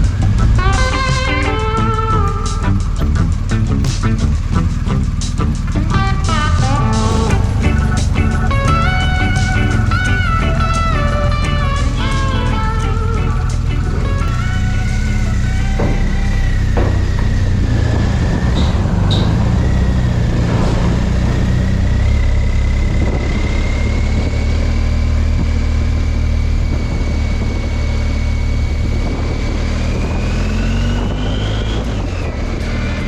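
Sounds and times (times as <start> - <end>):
motorcycle engine running: 0.0 - 33.0
rush of road noise: 0.0 - 33.0.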